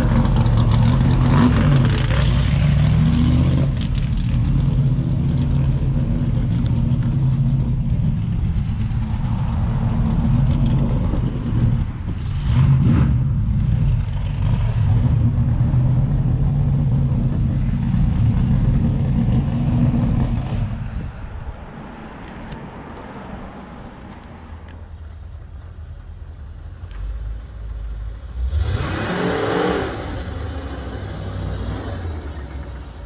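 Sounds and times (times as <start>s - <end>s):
car engine running hard: 24.0s - 33.0s.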